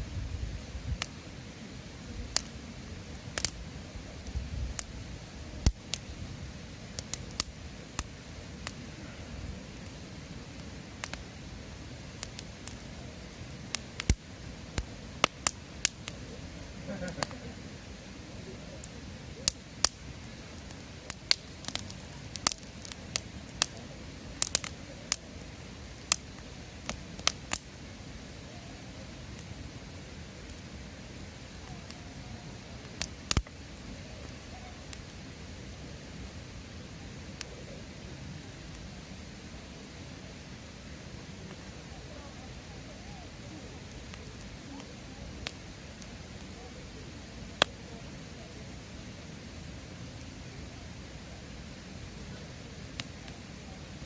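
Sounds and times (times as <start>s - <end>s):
flames rumbling: 0.0s - 54.0s
wood fire crackling and popping: 0.6s - 54.0s.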